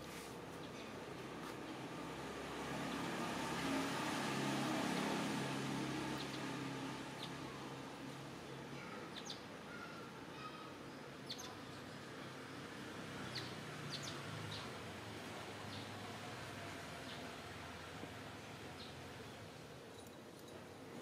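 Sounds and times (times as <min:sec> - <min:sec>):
small birds chirping: 0:06.1 - 0:07.7, 0:08.7 - 0:14.9, 0:18.2 - 0:20.6.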